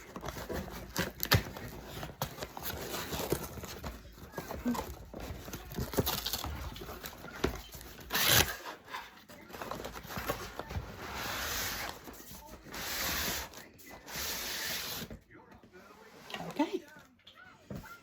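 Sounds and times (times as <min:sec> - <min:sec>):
packaging ripping: 0:08.0 - 0:08.6.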